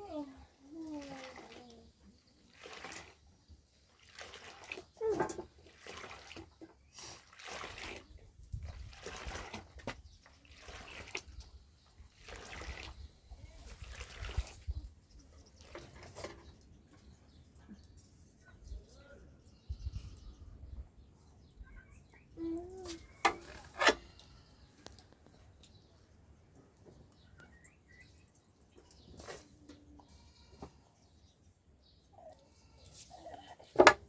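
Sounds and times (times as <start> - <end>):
water splashing: 3.9 - 5.0.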